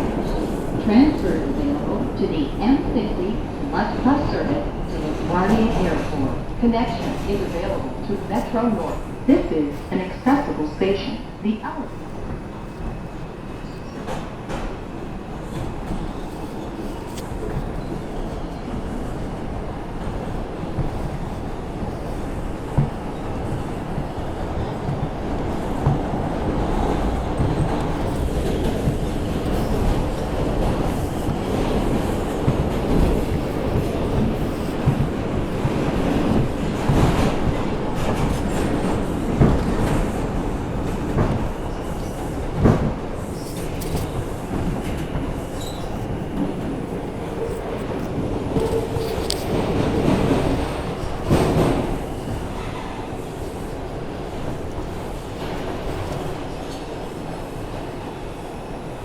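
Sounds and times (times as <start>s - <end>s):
subway wheels rumbling on rails: 0.0s - 59.0s
clacks over rail joints: 15.5s - 57.0s.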